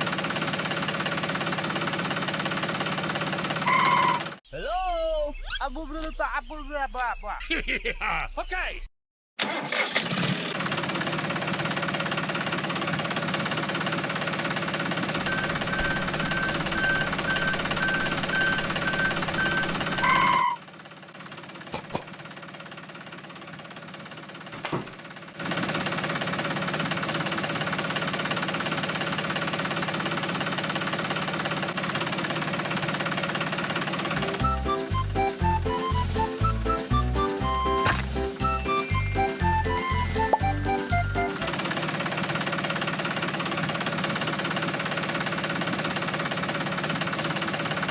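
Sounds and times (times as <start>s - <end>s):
small tractor motor running: 0.0s - 4.4s, 9.4s - 47.9s
short high beeps: 15.2s - 20.5s.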